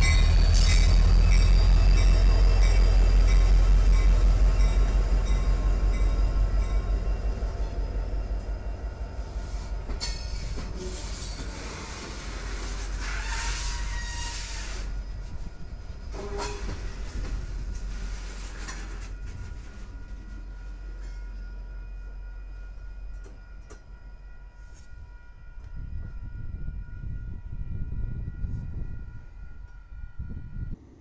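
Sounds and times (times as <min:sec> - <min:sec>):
diesel locomotive rumbling: 0:00.0 - 0:31.0
brief squeal: 0:09.4 - 0:15.4, 0:16.1 - 0:17.2.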